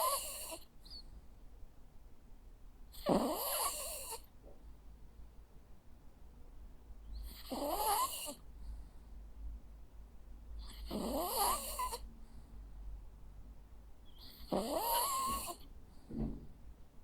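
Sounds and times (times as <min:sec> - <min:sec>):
dog snoring: 0:00.0 - 0:01.0, 0:02.9 - 0:04.3, 0:07.2 - 0:08.4, 0:10.6 - 0:12.0, 0:14.2 - 0:15.6.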